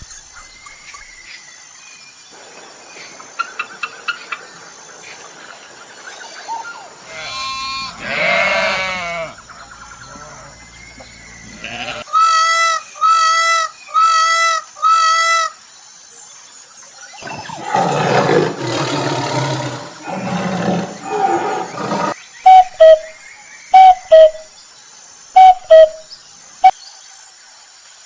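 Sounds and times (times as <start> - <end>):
rough noisy animal call: 7.0 - 12.7, 17.2 - 22.2
loud falling animal calls: 7.1 - 9.4.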